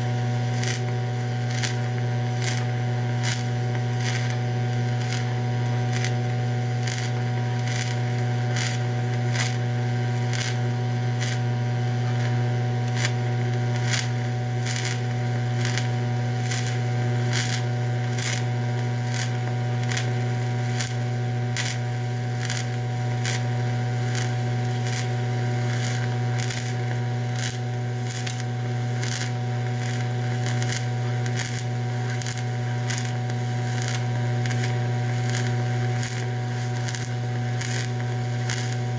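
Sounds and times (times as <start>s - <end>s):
welding arc buzzing: 0.0s - 38.9s
sharp crackling ticks: 36.8s - 38.8s.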